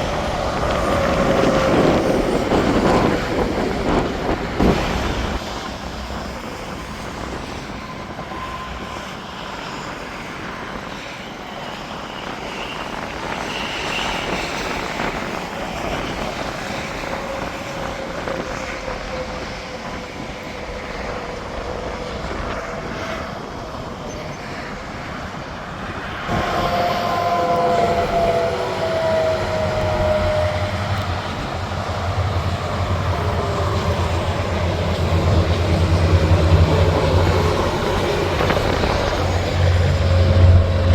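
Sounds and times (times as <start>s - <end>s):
highway traffic passing: 24.6s - 40.9s
truck engine rumble: 26.3s - 40.9s.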